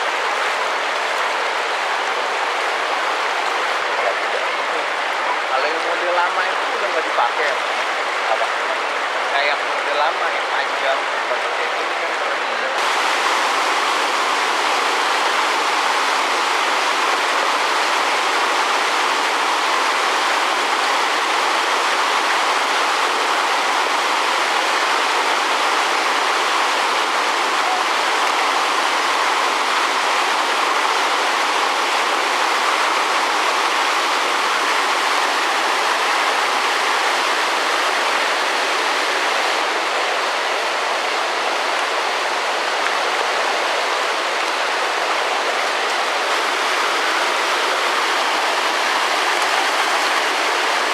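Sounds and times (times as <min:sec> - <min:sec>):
rushing river water: 0:00.0 - 0:50.9.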